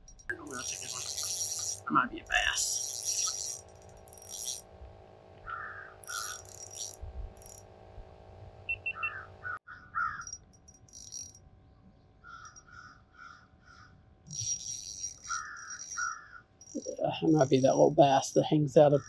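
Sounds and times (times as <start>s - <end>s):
crows cawing: 5.4s - 6.6s, 9.0s - 10.4s, 12.2s - 14.0s, 15.2s - 16.5s.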